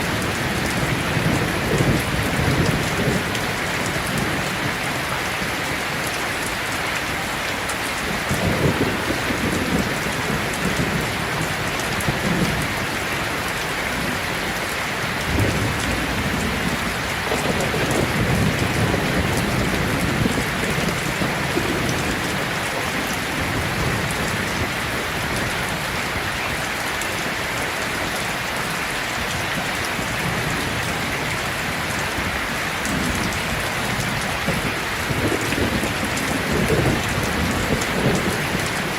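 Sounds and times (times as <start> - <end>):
rolling thunder: 0.0 - 4.8, 15.2 - 25.9, 29.3 - 38.9
heavy rain falling: 0.0 - 38.9.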